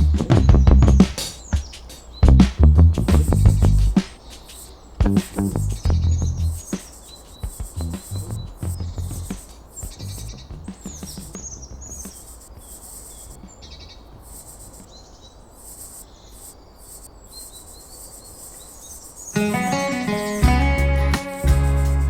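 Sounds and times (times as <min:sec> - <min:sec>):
insects humming: 0:00.0 - 0:22.0
small birds chirping: 0:00.0 - 0:22.0.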